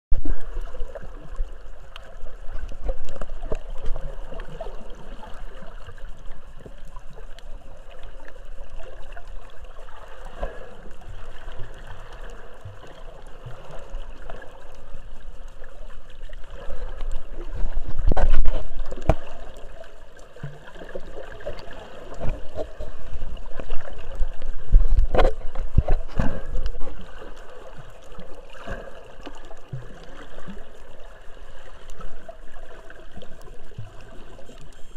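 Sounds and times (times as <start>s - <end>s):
sea water sloshing and gurgling: 0.1s - 34.9s.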